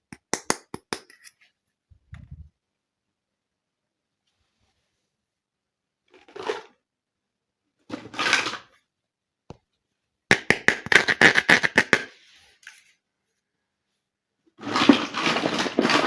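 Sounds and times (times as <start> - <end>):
plastic toy pieces rustling: 14.6 - 16.0.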